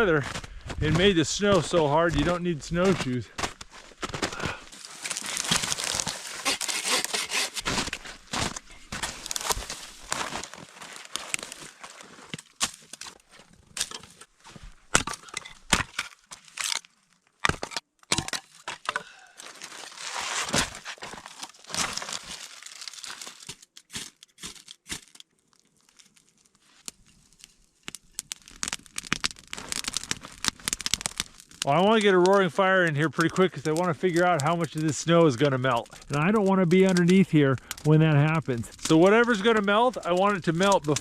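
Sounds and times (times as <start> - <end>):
dry sticks snapping: 4.8 - 11.7, 27.8 - 32.1, 36.8 - 41.0.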